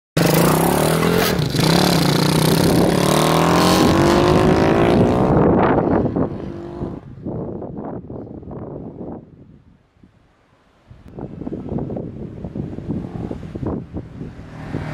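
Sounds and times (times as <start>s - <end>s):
minibike engine accelerating: 0.2s - 5.4s.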